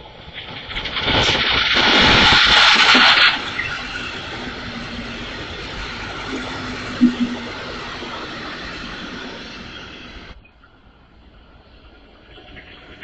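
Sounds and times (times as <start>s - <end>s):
train passing at speed: 0.0s - 13.0s
faint steady tone: 7.0s - 7.6s.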